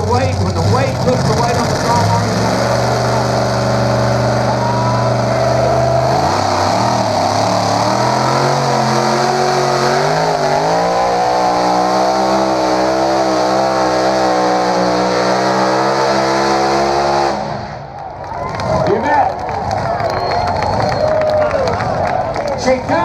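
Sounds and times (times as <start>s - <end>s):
tractor engine at full throttle: 0.0s - 18.0s.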